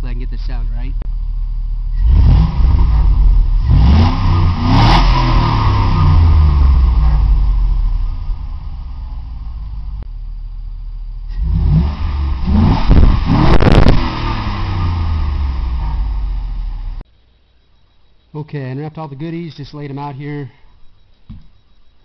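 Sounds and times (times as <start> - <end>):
car engine revving: 0.0 - 17.0
car engine idling: 0.0 - 17.1.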